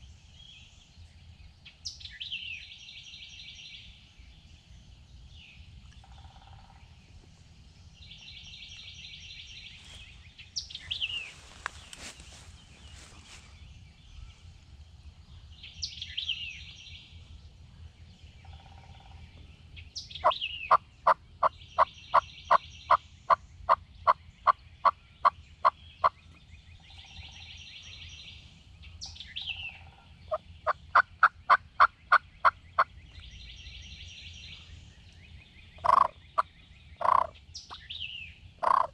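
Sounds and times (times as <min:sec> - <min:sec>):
songbirds chirping and whistling: 0:00.0 - 0:38.9
turkey yelping: 0:38.6 - 0:38.9.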